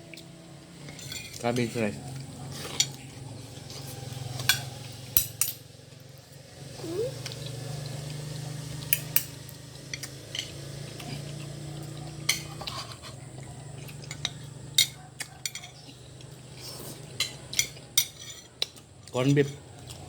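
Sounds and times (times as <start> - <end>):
cutlery clinking against a plate: 0.8 - 3.1, 3.7 - 5.7, 8.8 - 11.5, 12.2 - 13.2, 13.8 - 20.0.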